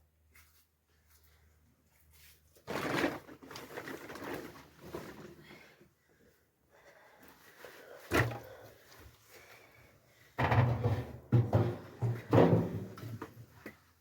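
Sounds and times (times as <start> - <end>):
heavy thumps and knocks: 10.4 - 13.3.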